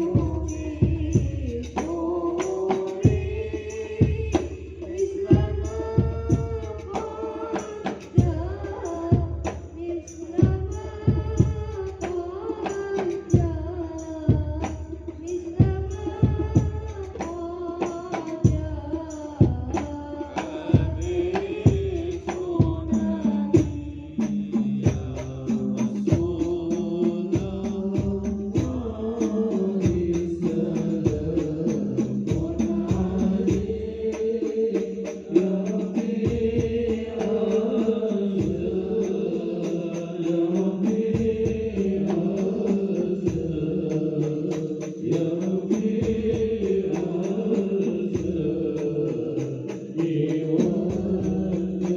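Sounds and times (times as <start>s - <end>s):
hand drum beats: 0.0s - 51.9s
person chanting melodiously: 19.4s - 51.9s.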